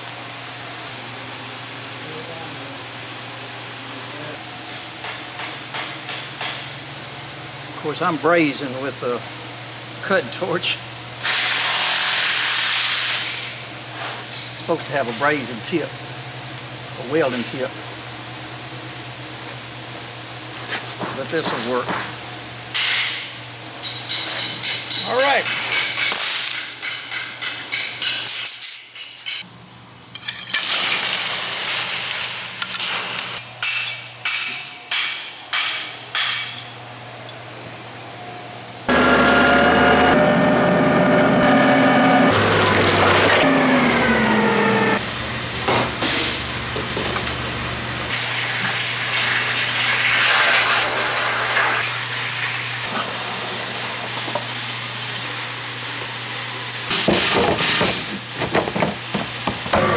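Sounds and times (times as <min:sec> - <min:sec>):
constant low hum: 0:32.6 - 0:48.2
hammer striking metal: 0:33.4 - 0:36.6
motor whine: 0:38.8 - 0:48.1.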